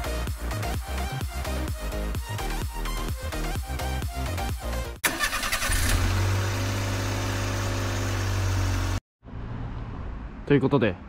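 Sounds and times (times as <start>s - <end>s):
car engine starting and running: 5.0s - 11.0s.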